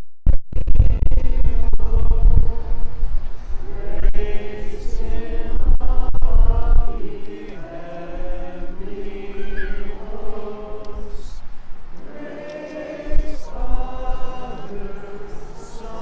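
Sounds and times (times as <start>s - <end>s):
low rumble: 0.4s - 4.4s
group singing a hymn: 1.1s - 16.0s.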